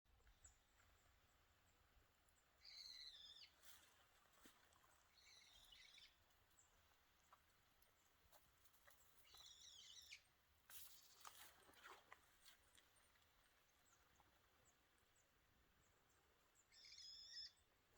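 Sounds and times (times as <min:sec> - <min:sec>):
bird warbling calls: 0:02.6 - 0:03.6, 0:05.1 - 0:06.2, 0:09.2 - 0:10.2, 0:16.6 - 0:17.6.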